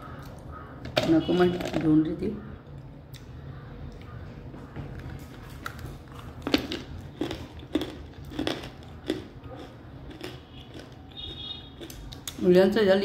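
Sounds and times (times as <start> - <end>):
chewing crunchy clay: 4.9 - 12.4.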